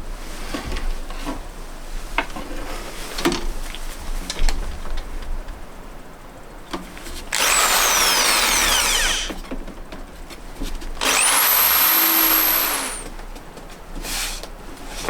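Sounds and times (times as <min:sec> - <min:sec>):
cordless drill whining: 0:07.3 - 0:09.4, 0:11.0 - 0:13.1.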